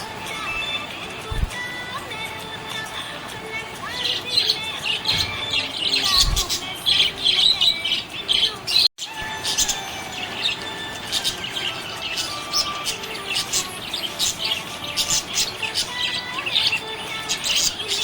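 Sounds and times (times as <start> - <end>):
budgerigars chirping and warbling: 3.7 - 18.0.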